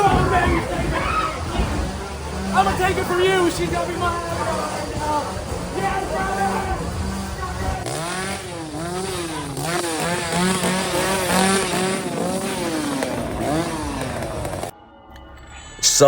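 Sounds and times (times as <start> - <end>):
chainsaw revving: 0.0 - 14.7.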